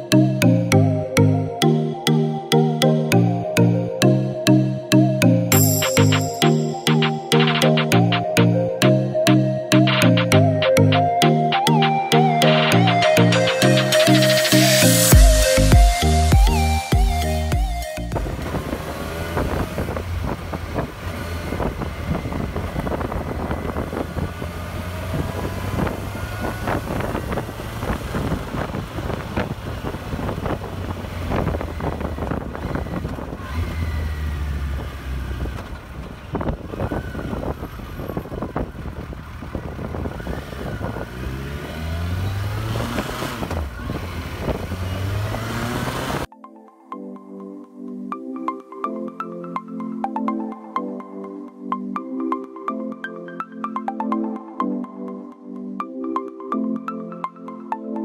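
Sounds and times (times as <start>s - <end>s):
motorcycle engine revving: 18.1s - 46.3s
wind buffeting microphone: 18.2s - 34.0s, 34.7s - 41.5s.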